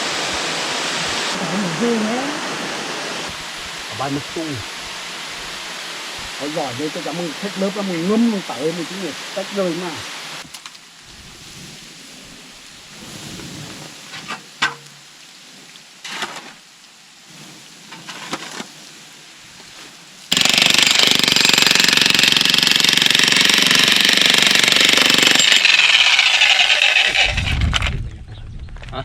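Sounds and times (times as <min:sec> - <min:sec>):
jackhammer hammering: 0:20.3 - 0:27.6.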